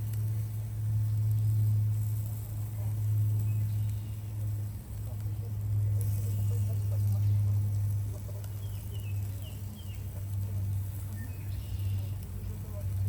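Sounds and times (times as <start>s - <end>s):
steady low hum: 0.0s - 13.0s
faint bird chirps: 11.0s - 12.3s.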